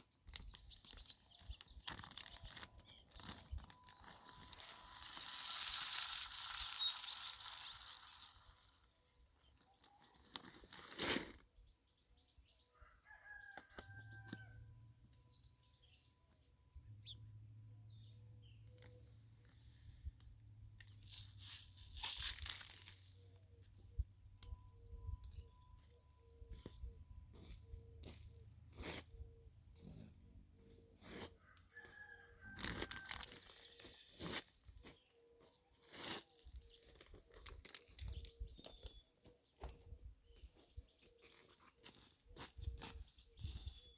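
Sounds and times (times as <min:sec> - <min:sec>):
faint bird chirps: 0:00.0 - 0:10.3, 0:23.1 - 0:43.9.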